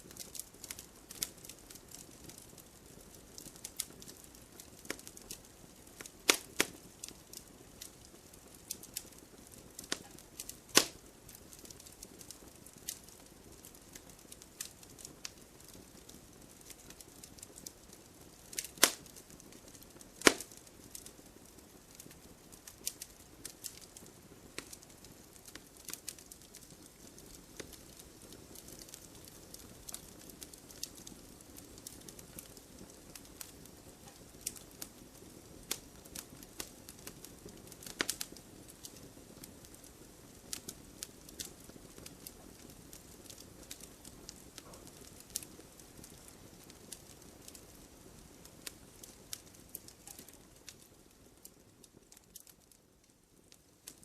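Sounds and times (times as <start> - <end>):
faint low hiss: 0.0 - 54.0
wood fire crackling: 0.0 - 54.0
logs popping: 9.8 - 11.0, 18.5 - 19.1, 20.2 - 20.6.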